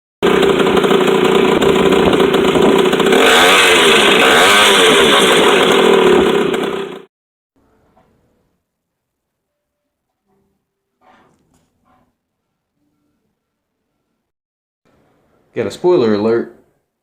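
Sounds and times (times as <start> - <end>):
small motorcycle engine revving: 0.2 - 7.1.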